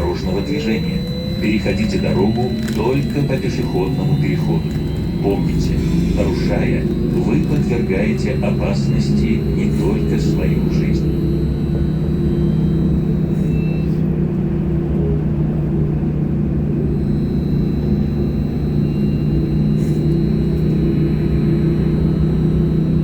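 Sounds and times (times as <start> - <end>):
trolleybus rumble: 0.0 - 11.8, 13.6 - 17.2
thin high whine: 0.0 - 15.1, 16.7 - 23.0.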